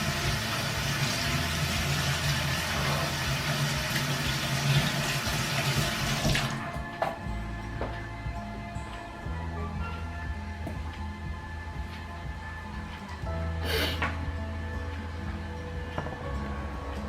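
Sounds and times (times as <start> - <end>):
tap water running into sink: 0.0 - 6.6.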